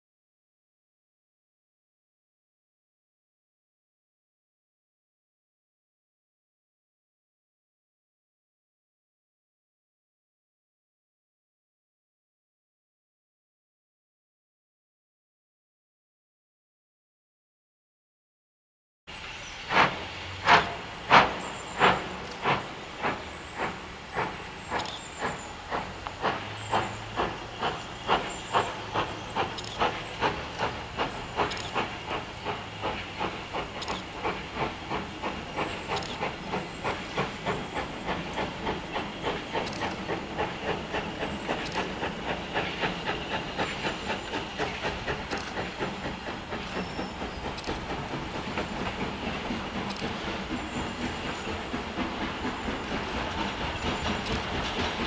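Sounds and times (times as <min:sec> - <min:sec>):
steam hissing: 0:19.1 - 0:55.0
steam locomotive exhaust beats: 0:19.1 - 0:55.0.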